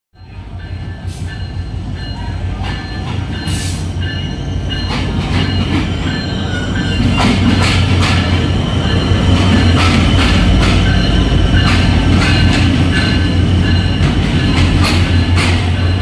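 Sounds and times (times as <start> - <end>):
diesel locomotive engine drone: 0.2 - 16.0
wheels clanking on track: 1.0 - 16.0
metallic wheel squeals: 2.1 - 16.0.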